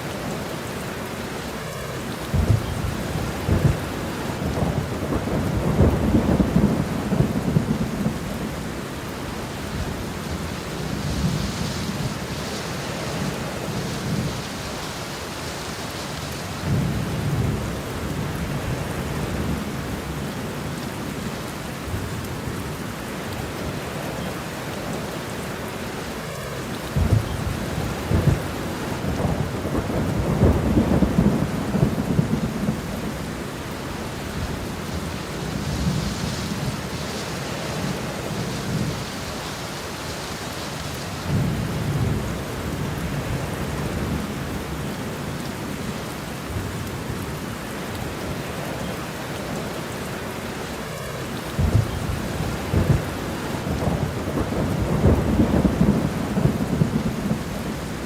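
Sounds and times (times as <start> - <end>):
steady rain: 0.0 - 58.0
rolling thunder: 2.2 - 8.8, 26.9 - 39.4, 41.2 - 44.9, 51.5 - 58.0.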